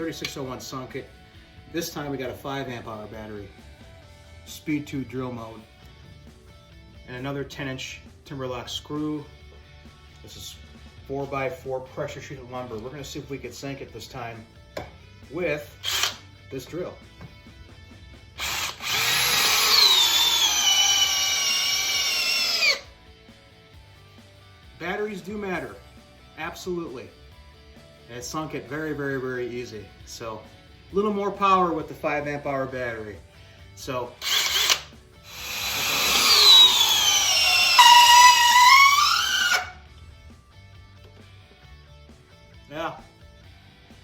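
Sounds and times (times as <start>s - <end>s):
light background music: 0.0s - 44.0s
drill motor whine: 15.8s - 16.2s, 18.4s - 22.9s, 34.2s - 39.8s
drill trigger blip: 15.8s - 16.2s, 34.2s - 39.7s.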